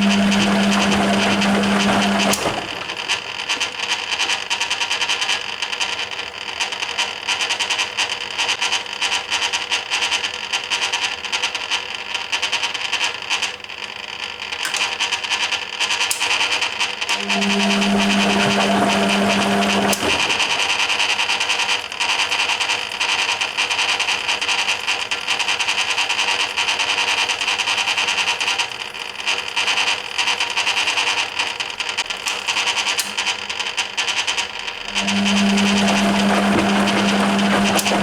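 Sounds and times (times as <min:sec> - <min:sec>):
steady hum: 0:00.0 - 0:03.4, 0:17.1 - 0:21.2, 0:34.5 - 0:38.0
washing machine water churning: 0:00.0 - 0:04.6, 0:17.0 - 0:38.0.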